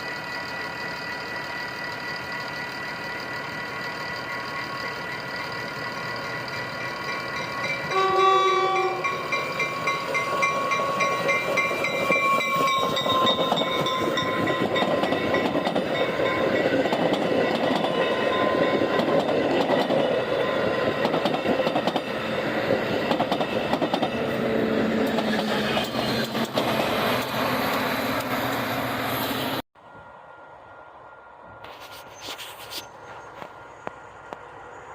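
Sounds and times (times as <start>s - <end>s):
train wheels clattering on rails: 2.0s - 28.6s
train horn blast: 7.9s - 9.2s.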